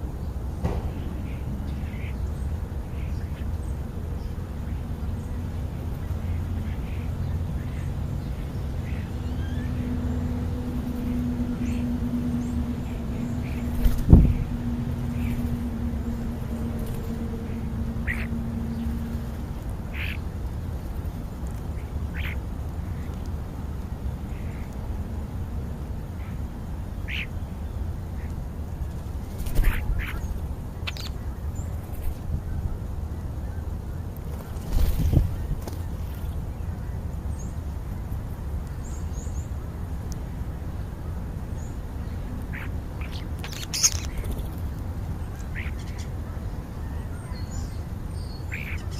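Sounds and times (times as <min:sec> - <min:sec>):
low background rumble: 0:00.0 - 0:48.9
bird calls: 0:06.0 - 0:19.2, 0:19.8 - 0:20.3, 0:21.7 - 0:23.2, 0:27.0 - 0:28.4, 0:29.2 - 0:32.8, 0:41.6 - 0:48.9
faint high bird chirps: 0:42.5 - 0:44.6.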